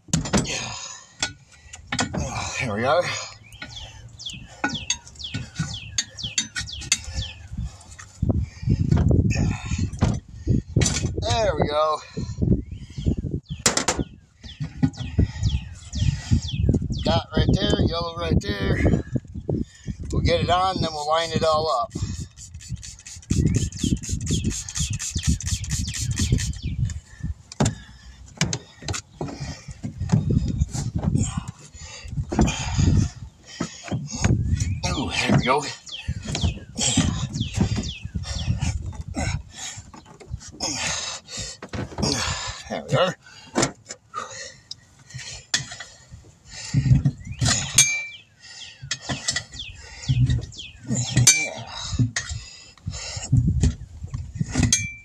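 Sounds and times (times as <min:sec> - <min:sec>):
tire irons clinking on wheel rim: 0:00.1 - 0:08.0, 0:47.1 - 0:48.3, 0:54.5 - 0:55.0
tire squeaking against rim: 0:01.6 - 0:10.2, 0:20.2 - 0:27.1, 0:32.4 - 0:42.6, 0:45.2 - 0:52.3
rubber bead squeaking on rim: 0:22.0 - 0:26.8.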